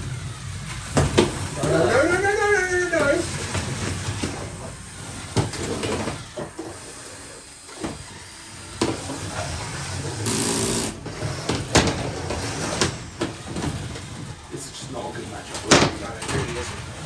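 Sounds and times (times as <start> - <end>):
robot motor hum: 0.0 - 14.4
plastic knocks and clatter: 0.7 - 6.9, 10.9 - 17.0.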